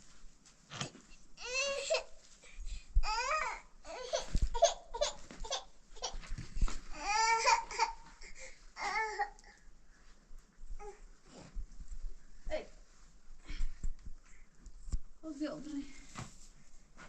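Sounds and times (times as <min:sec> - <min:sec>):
young child babbling and laughing: 0:03.0 - 0:06.3.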